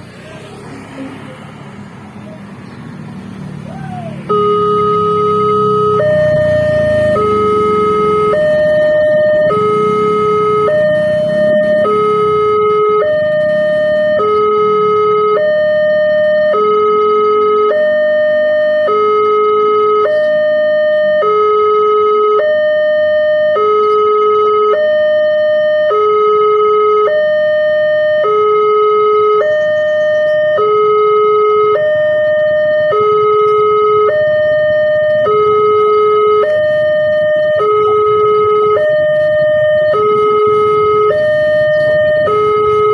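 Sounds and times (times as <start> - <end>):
faint engine rumble: 0.0 - 19.3, 27.1 - 42.9
level crossing two-tone alarm: 4.2 - 42.9.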